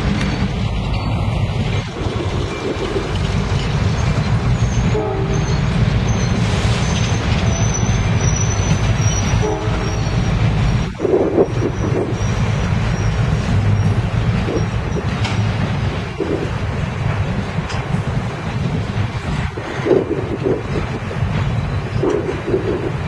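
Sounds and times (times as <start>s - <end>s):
train wheels rumbling on rail: 0.0s - 23.0s
wheel flange squeal: 1.8s - 15.5s
train horn toots: 4.6s - 5.8s, 9.0s - 10.4s.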